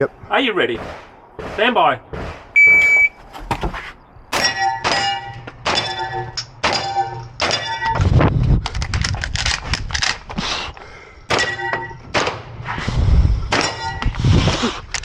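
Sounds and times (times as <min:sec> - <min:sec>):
steel targets ringing: 0:04.4 - 0:08.0.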